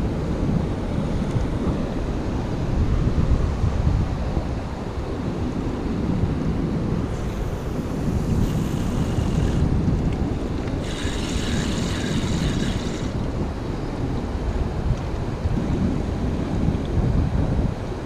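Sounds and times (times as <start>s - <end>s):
wind buffeting microphone: 0.0s - 18.0s
sea waves: 6.6s - 15.4s
hissing surf: 7.1s - 9.8s, 10.7s - 13.4s.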